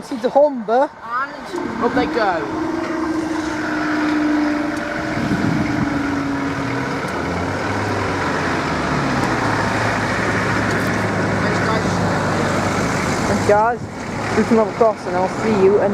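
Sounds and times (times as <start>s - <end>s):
vehicle engines humming: 0.0s - 15.9s
low truck engine note: 1.0s - 15.9s.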